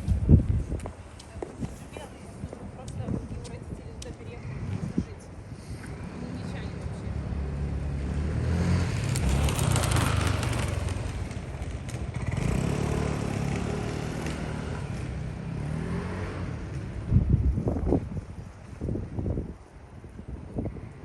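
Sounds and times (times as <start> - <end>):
wind on microphone: 0.0 - 13.3, 14.7 - 21.0
vehicle engine passing: 5.6 - 17.1.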